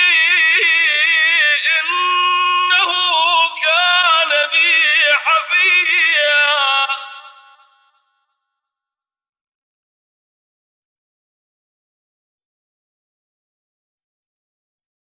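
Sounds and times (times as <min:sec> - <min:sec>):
man chanting melodically: 0:00.0 - 0:07.9.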